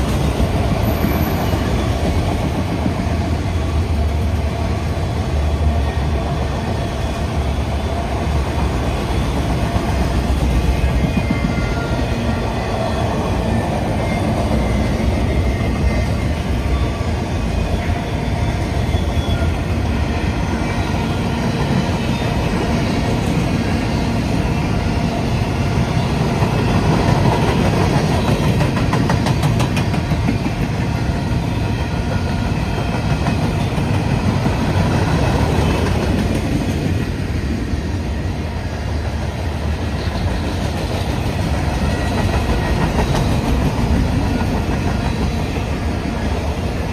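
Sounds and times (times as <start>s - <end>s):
train wheels rumbling on track: 0.0s - 46.9s.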